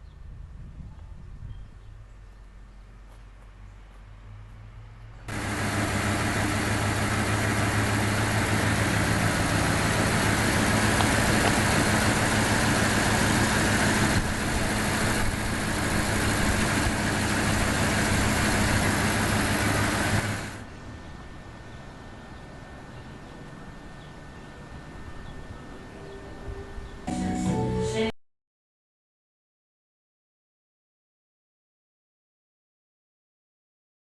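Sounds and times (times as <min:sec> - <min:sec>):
motor humming with hiss: 0:05.3 - 0:28.1.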